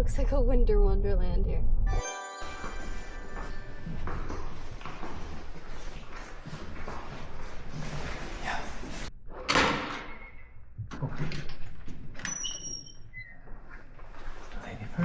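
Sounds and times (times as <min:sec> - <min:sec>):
door banging shut: 0:09.5 - 0:10.2.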